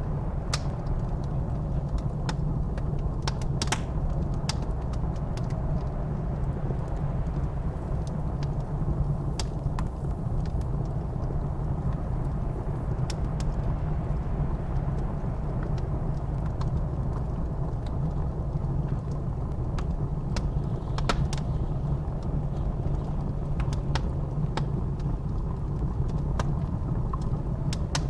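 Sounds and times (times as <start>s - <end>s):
fire pops and snaps: 0.0s - 28.0s
low rumble of blizzard wind: 0.0s - 28.0s
wood fire crackling: 0.0s - 28.0s.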